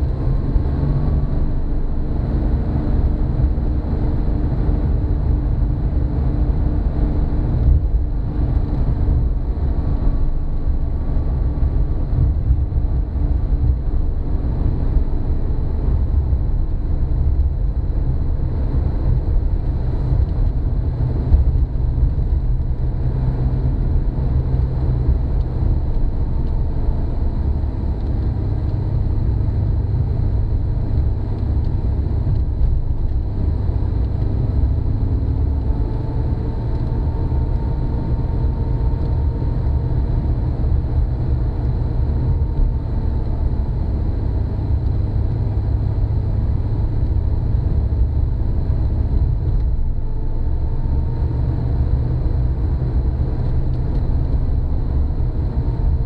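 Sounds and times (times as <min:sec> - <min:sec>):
car engine drone: 0:00.0 - 0:56.0
road noise: 0:00.0 - 0:56.0.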